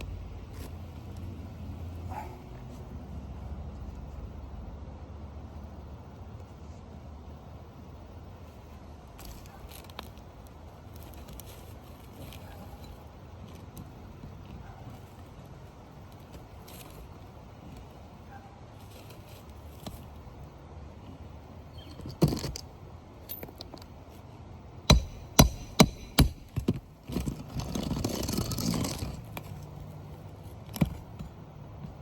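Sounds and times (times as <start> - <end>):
tool tapping on shingles: 24.8 - 29.6
scraping on shingles: 24.9 - 32.0.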